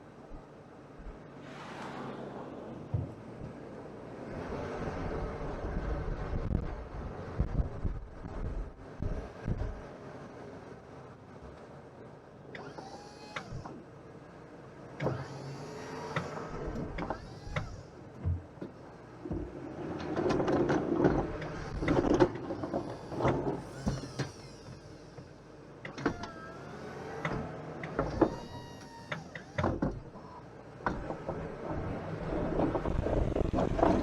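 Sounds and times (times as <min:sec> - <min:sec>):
sharp clunks and knocks: 0:02.9 - 0:03.6
wavering whine: 0:21.5 - 0:30.5.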